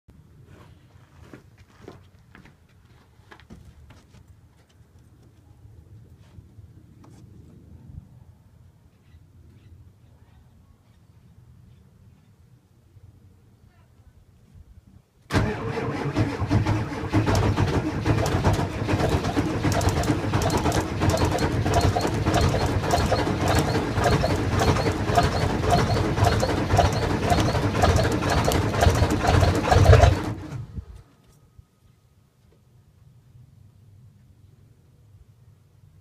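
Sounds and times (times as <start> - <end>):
diesel engine cranking: 15.3 - 30.9.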